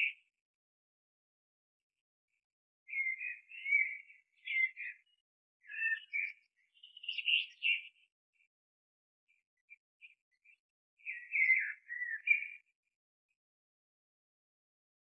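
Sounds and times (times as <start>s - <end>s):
birds chirping and singing: 2.9s - 8.1s, 10.0s - 12.7s.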